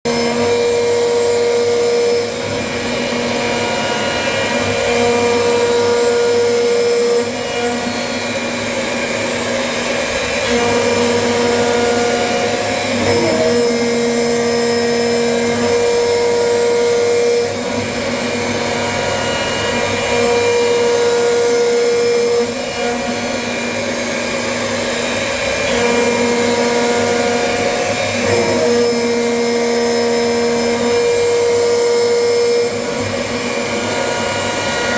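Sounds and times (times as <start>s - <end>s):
machine motor noise: 9.8s - 21.5s.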